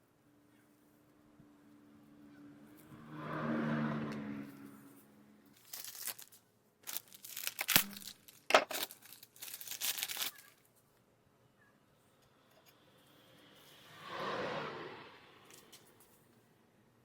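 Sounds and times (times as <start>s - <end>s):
crinkling crackling noises: 4.0s - 11.0s.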